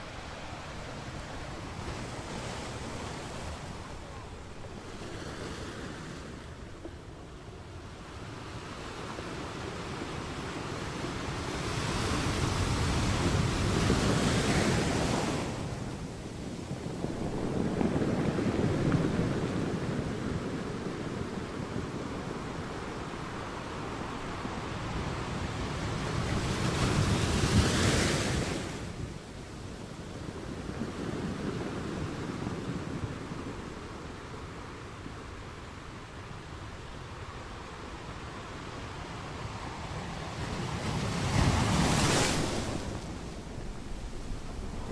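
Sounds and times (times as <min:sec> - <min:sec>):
ocean waves breaking: 0:39.3 - 0:44.9.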